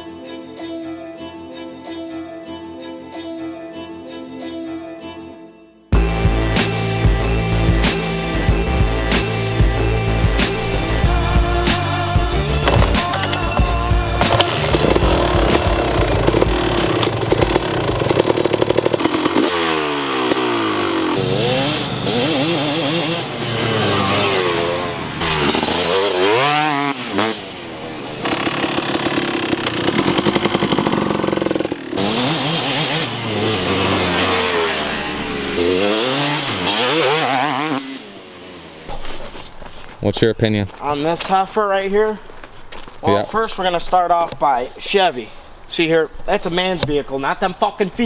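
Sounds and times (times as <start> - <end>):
two-stroke dirt bike engine revving: 10.5 - 39.3.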